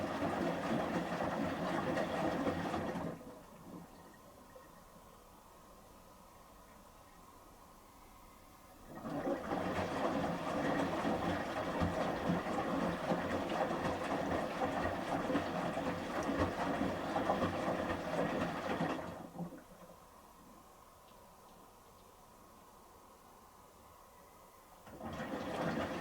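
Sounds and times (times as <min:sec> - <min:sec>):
water sloshing: 0:00.0 - 0:04.6, 0:08.9 - 0:20.0, 0:24.8 - 0:26.0.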